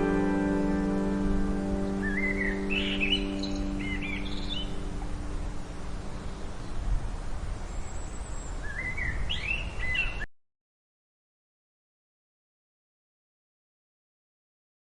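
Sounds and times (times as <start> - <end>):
steady background hiss: 0.0 - 10.3
bird calling in rising notes: 1.6 - 5.2.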